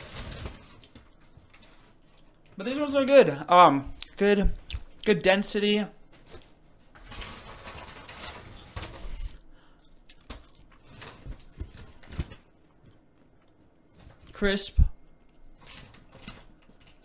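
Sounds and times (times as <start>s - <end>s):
rustling: 0.0s - 2.6s, 6.0s - 13.0s
chewing crispy fries: 9.6s - 11.6s.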